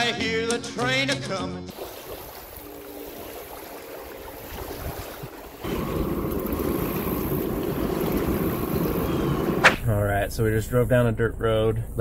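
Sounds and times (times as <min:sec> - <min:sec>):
quiet outdoor background: 0:00.0 - 0:12.0
distant train rumble: 0:05.4 - 0:12.0.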